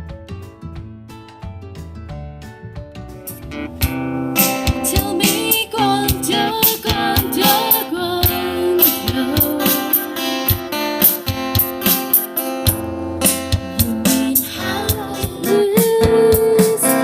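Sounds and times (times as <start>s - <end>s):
strummed acoustic guitar: 3.0s - 17.0s
drum beat: 3.8s - 17.0s.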